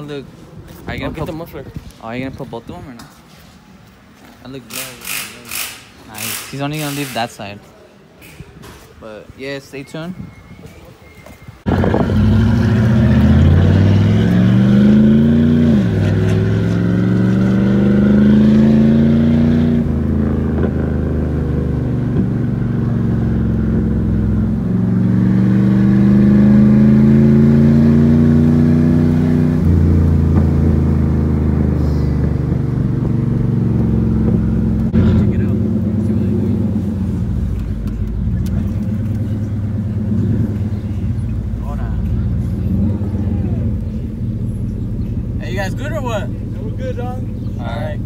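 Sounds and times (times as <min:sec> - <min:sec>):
truck engine accelerating: 0:11.6 - 0:48.0.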